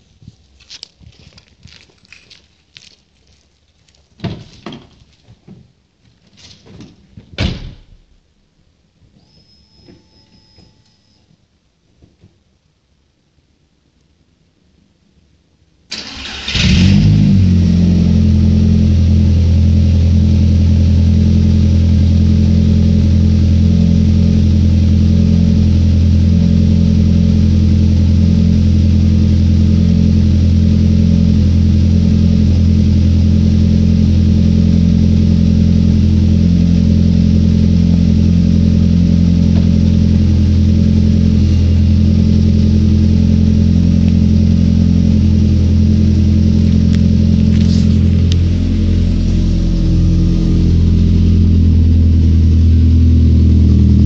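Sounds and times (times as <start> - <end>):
engine starter cranking: 15.9 - 17.1
car engine idling: 15.9 - 54.0.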